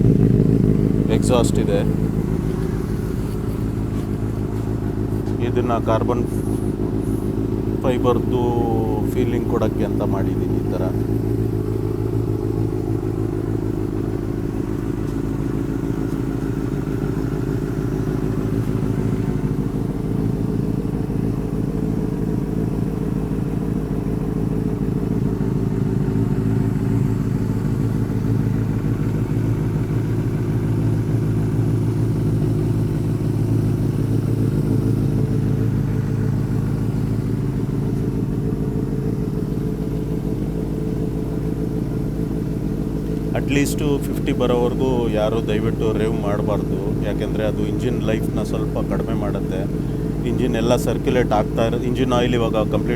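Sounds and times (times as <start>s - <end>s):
motorcycle engine idling: 0.0s - 52.9s.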